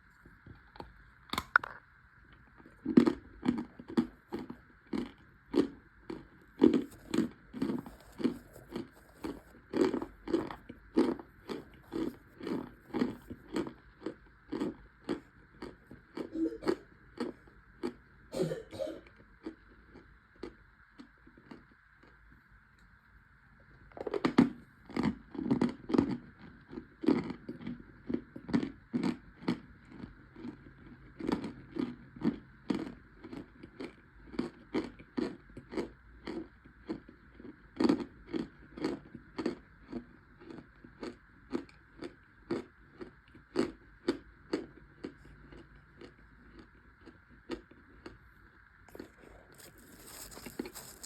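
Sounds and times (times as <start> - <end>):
crunchy chewing: 0.0 - 22.3, 23.8 - 51.0.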